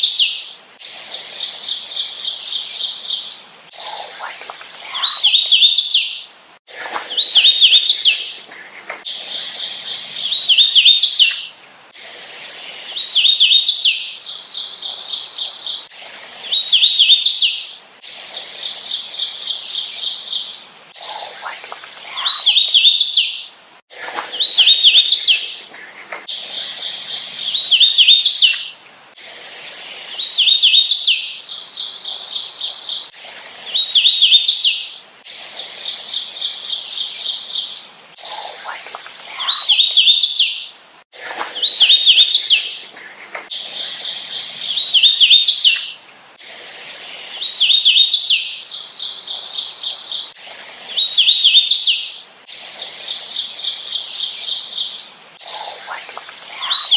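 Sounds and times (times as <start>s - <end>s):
warbler singing whistled notes: 0.0s - 8.5s, 9.1s - 11.6s, 12.4s - 17.8s, 18.4s - 28.8s, 29.7s - 35.0s, 35.8s - 40.8s, 41.4s - 46.0s, 47.2s - 56.9s
evenly spaced repeated bird notes: 0.0s - 11.6s, 18.4s - 28.8s, 35.7s - 46.0s, 52.8s - 56.9s.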